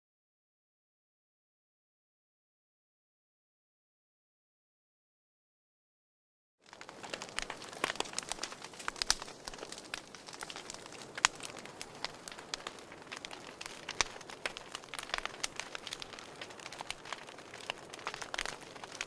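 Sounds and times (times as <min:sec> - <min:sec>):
soft steady fire hiss: 0:06.6 - 0:19.0
wood fire crackling and popping: 0:06.6 - 0:19.0.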